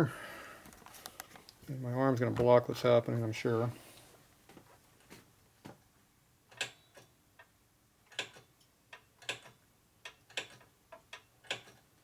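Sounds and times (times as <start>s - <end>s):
tools clicking and tapping: 8.1s - 11.9s.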